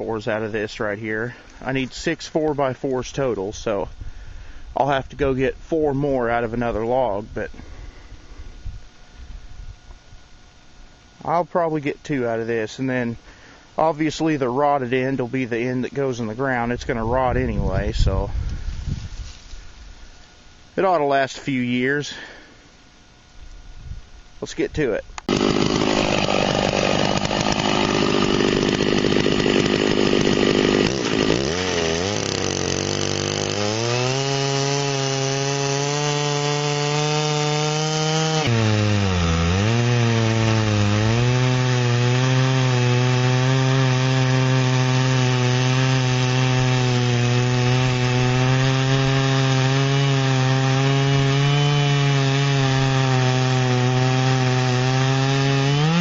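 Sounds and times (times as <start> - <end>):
chainsaw cutting through log: 25.2 - 56.0.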